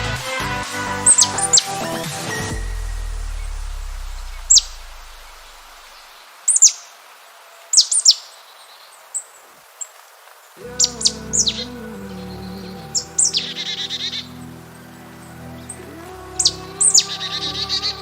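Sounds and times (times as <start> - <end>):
music: 0.0 - 5.0, 10.6 - 18.0
low tone: 2.4 - 5.9
small bird chirping: 2.6 - 7.0
faint hiss: 2.6 - 18.0.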